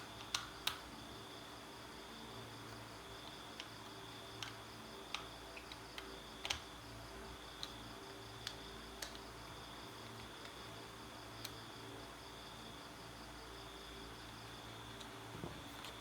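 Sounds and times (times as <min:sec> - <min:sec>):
light sharp clicks and taps: 0:04.4 - 0:06.7.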